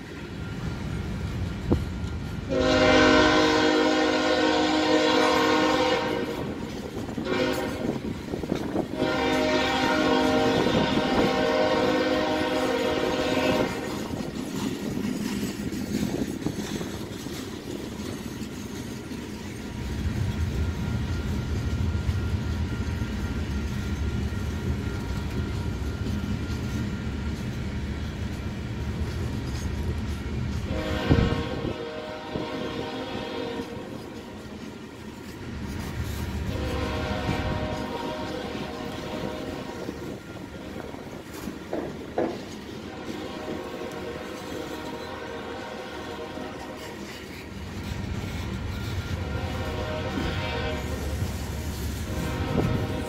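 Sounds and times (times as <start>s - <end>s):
train cars clattering on rails: 0.0s - 53.0s
locomotive air horn blasts: 2.5s - 14.2s, 30.7s - 34.2s, 36.5s - 40.0s, 42.8s - 47.3s, 49.0s - 53.0s.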